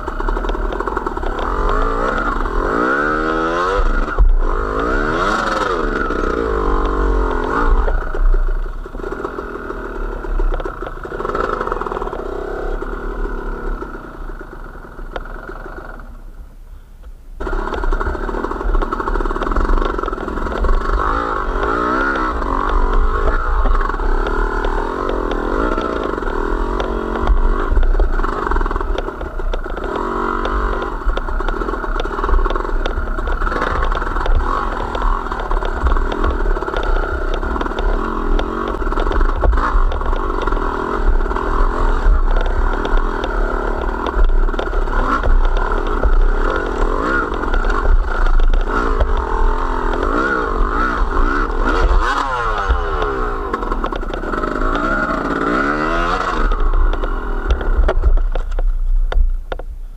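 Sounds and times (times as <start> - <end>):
rattles and clatter: 0.0 - 15.9, 17.4 - 59.8
motorcycle engine revving: 0.0 - 16.4, 17.4 - 59.9.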